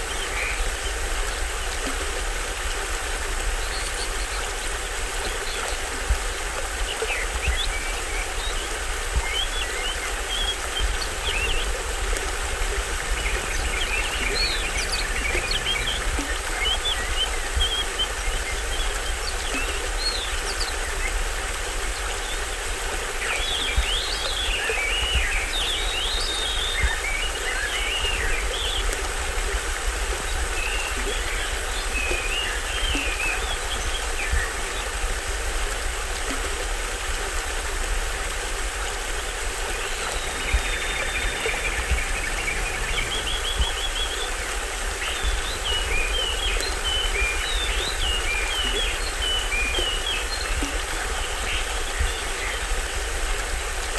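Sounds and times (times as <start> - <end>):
small waterfall running: 0.0 - 53.9
birds chirping and calling: 9.3 - 20.4, 39.8 - 44.3.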